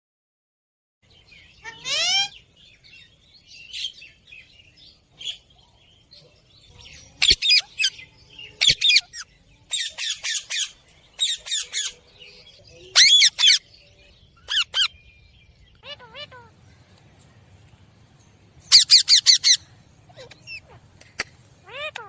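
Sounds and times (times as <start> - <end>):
bird squawking: 1.6 - 2.4, 7.2 - 7.9, 8.6 - 12.0, 12.9 - 13.7, 14.4 - 15.0, 15.8 - 16.6, 18.7 - 21.0, 21.6 - 22.0.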